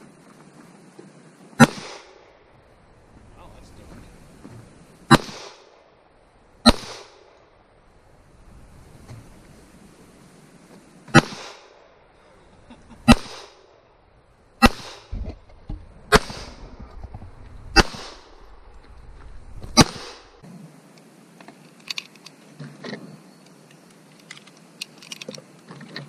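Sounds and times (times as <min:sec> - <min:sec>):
pistol shots with echo: 0:01.6 - 0:02.2, 0:05.1 - 0:05.7, 0:06.6 - 0:07.2, 0:11.1 - 0:11.7, 0:13.1 - 0:13.6, 0:14.6 - 0:15.1, 0:17.8 - 0:18.3, 0:19.8 - 0:20.3.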